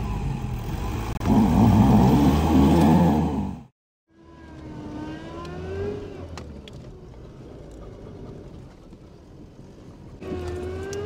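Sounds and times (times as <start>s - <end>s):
vehicle engine whining under load: 0.0s - 11.0s.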